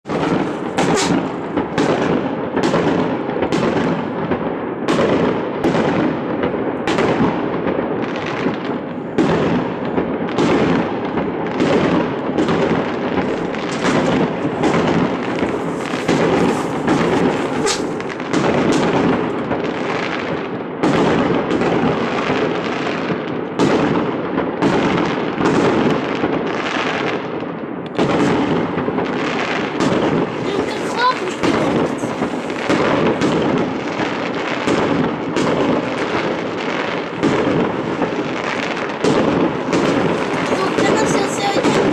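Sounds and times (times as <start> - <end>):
firework shells bursting: 0.0 - 3.9, 8.2 - 20.4, 27.9 - 41.9
overlapping explosions and crackle: 0.0 - 41.9.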